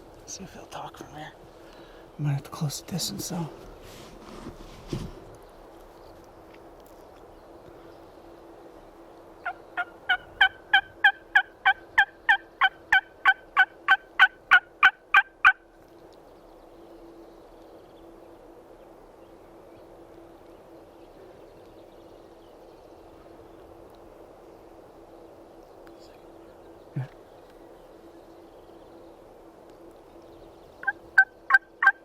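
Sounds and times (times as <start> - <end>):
turkey call yelps: 30.8 - 32.0.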